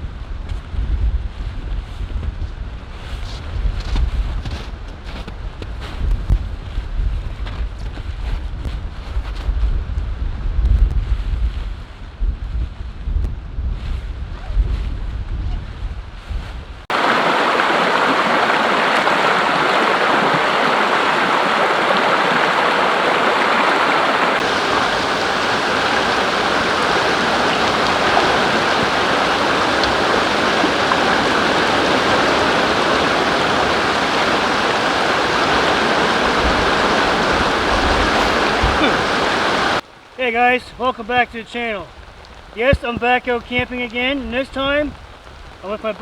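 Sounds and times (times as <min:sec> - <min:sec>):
river rushing: 0:16.9 - 0:39.8.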